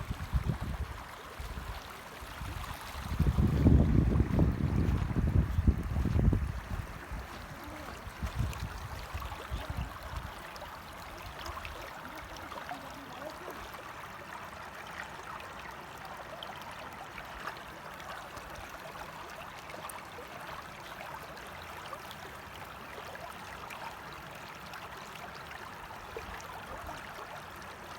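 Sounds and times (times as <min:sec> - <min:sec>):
wind buffeting microphone: 0:00.0 - 0:10.3
flowing water rushing: 0:00.0 - 0:27.9.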